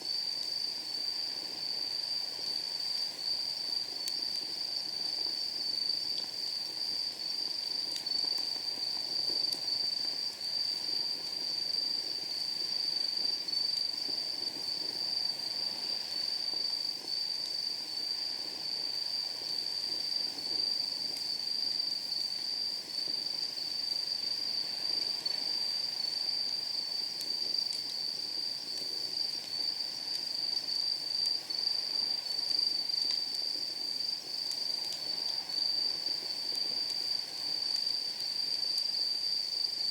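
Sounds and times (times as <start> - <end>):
wood fire crackling: 0.0 - 39.0
night insects trilling: 0.0 - 39.9.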